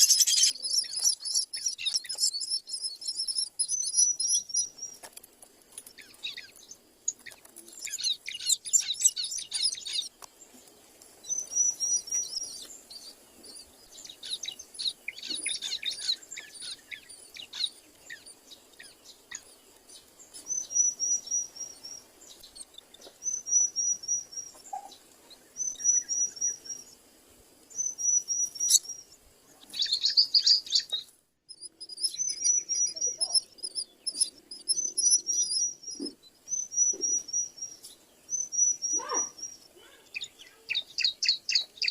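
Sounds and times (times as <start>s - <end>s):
birds chirping: 0.0s - 41.9s
high trilled bird phrase: 32.5s - 33.6s, 38.8s - 40.7s.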